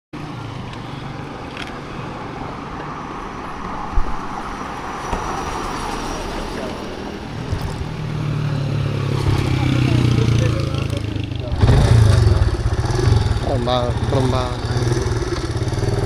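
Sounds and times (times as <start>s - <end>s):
road and wind noise: 0.2s - 16.0s
motorcycle engine hum: 6.2s - 16.0s.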